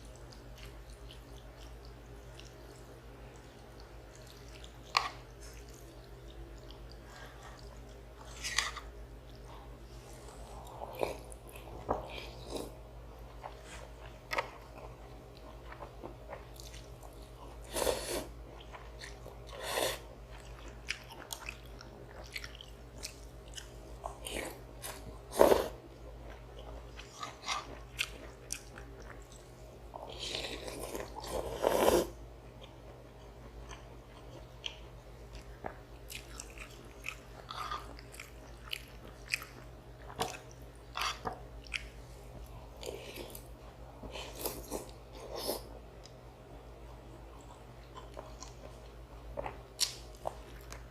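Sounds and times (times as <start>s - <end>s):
chewing and biting food: 33.6s - 43.5s.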